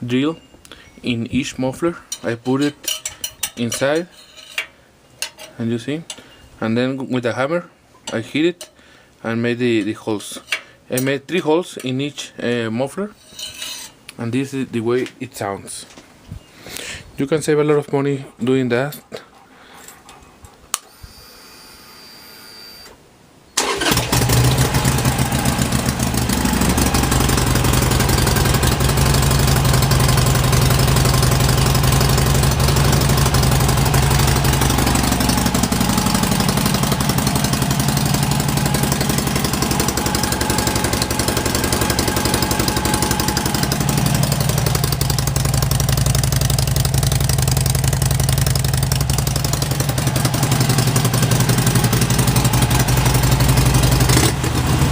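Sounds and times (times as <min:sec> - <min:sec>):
motorcycle engine starting and idling: 0:23.6 - 0:54.9.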